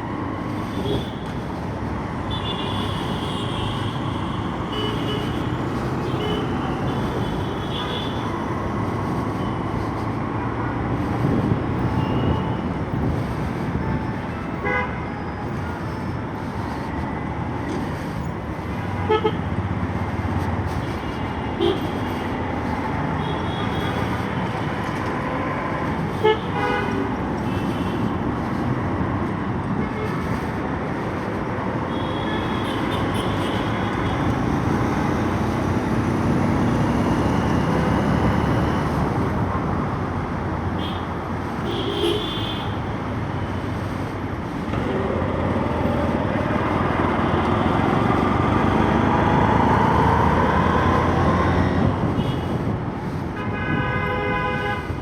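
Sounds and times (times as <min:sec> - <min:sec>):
road noise: 0:00.0 - 0:55.0
vehicle horns honking: 0:14.3 - 0:15.2, 0:18.8 - 0:19.5, 0:26.0 - 0:28.1, 0:40.8 - 0:42.8, 0:53.4 - 0:55.0.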